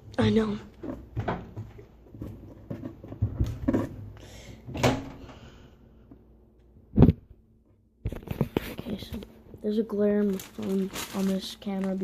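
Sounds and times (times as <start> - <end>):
knocks and rustles of handling: 0.7 - 5.3, 8.0 - 12.0.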